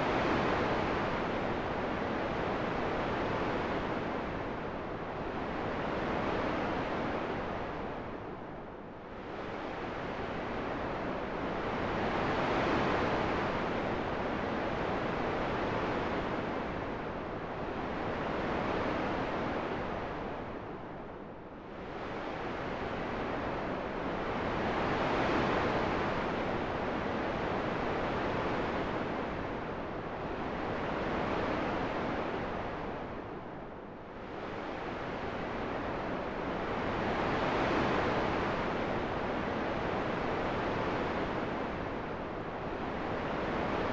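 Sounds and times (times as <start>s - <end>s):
wind rushing in gusts: 34.1s - 43.9s.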